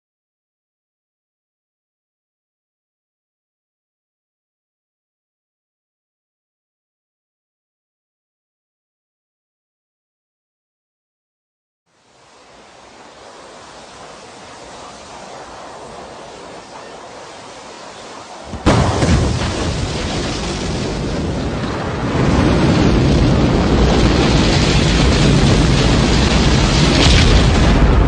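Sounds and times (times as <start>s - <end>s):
rocket engines roaring: 11.9s - 28.0s.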